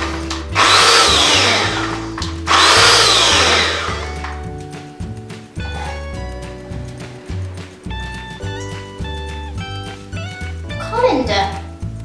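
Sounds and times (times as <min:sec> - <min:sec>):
blender motor whine: 0:00.0 - 0:04.4
background music with bass line: 0:00.0 - 0:12.0.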